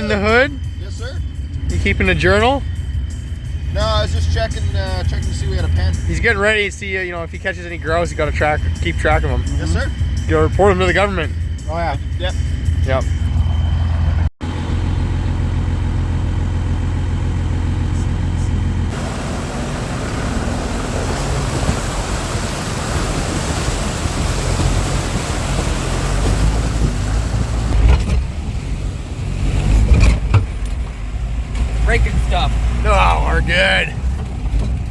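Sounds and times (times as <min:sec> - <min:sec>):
rushing noise of moving vehicle: 0:00.0 - 0:34.9
truck engine drone: 0:00.0 - 0:34.9
loud bumps: 0:18.9 - 0:28.8.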